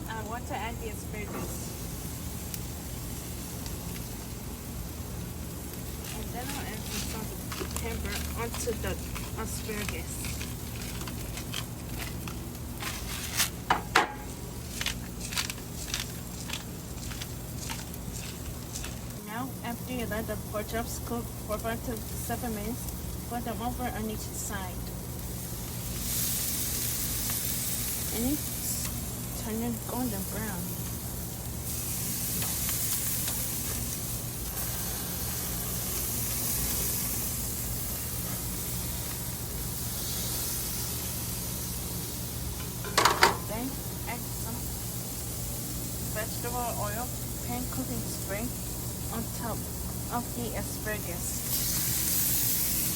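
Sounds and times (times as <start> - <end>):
meat sizzling on a grill: 0.0 - 52.9
steady low hum: 0.0 - 52.9
cooking gear clattering: 6.0 - 19.2, 42.6 - 43.6.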